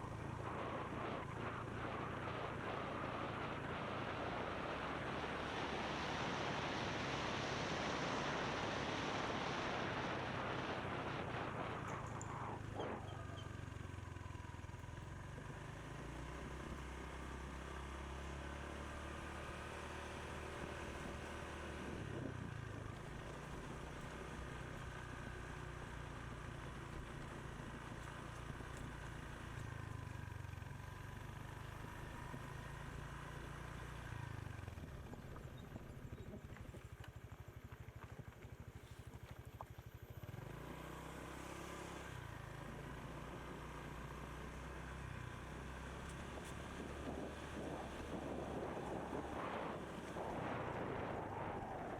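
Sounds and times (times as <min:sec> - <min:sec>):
motorbike engine humming: 0:00.0 - 0:39.5
wind and road noise: 0:00.0 - 0:51.9.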